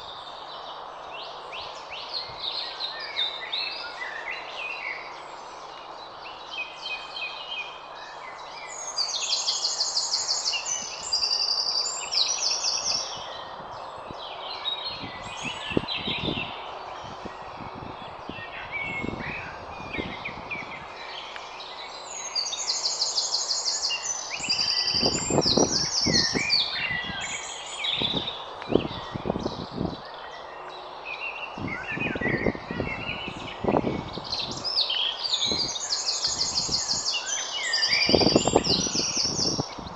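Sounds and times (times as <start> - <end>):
songbirds singing: 0.0 - 39.9
background hiss: 20.8 - 28.8.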